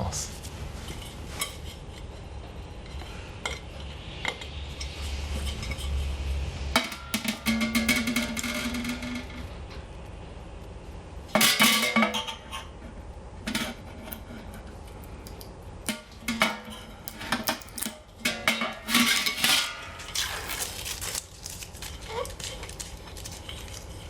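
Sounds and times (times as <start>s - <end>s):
steel panels clanking: 15.9s - 20.5s.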